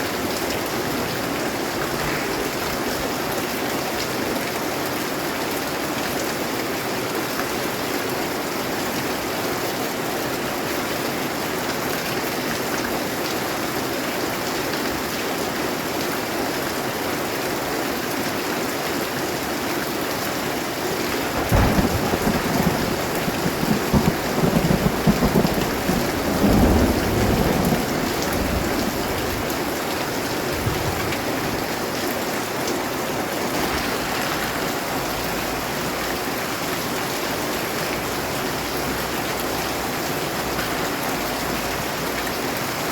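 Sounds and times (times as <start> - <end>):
steady rain: 0.0 - 42.9
thunder rumbling: 21.1 - 31.7, 33.4 - 36.7.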